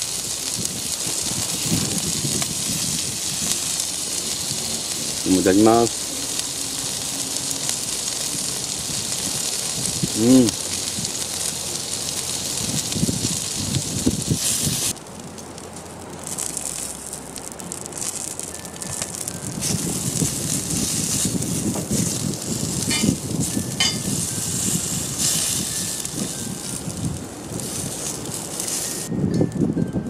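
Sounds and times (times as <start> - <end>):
vegetables sizzling in a skillet: 0.0 - 29.1.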